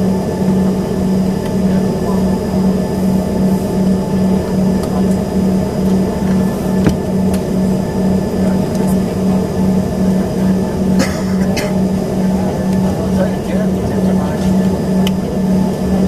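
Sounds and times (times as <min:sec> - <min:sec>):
jet cabin engine drone: 0:00.0 - 0:16.0
low pulsing hum: 0:00.0 - 0:16.0.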